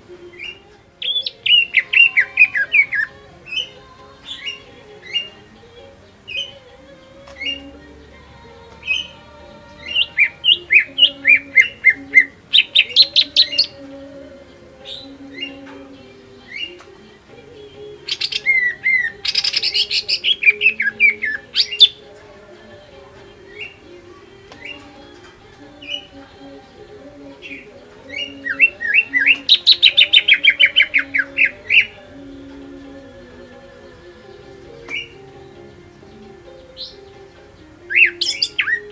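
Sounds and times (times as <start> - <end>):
bird calls: 0.0 - 38.9
bird singing whistled notes: 0.2 - 5.5, 6.2 - 6.7, 8.8 - 13.8, 17.6 - 22.1, 23.4 - 23.9, 24.6 - 25.1, 27.4 - 32.8, 34.2 - 38.9.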